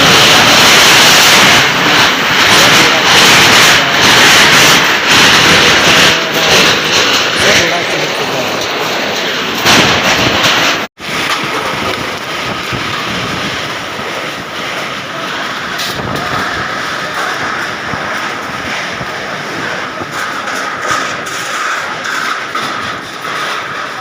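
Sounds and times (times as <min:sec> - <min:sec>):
storm wind on microphone: 0:00.0 - 0:24.0.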